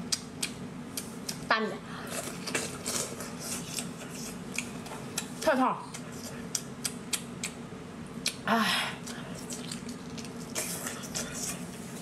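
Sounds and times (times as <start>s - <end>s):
wet chewing and lip-smacking: 0.1s - 1.4s, 2.1s - 7.6s, 8.2s - 8.4s, 9.0s - 11.6s.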